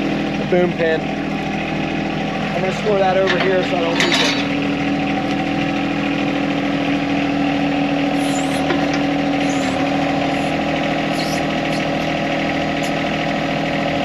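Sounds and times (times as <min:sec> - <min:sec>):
diesel tractor engine idling: 0:00.0 - 0:14.0
faint high chirps: 0:09.4 - 0:12.0.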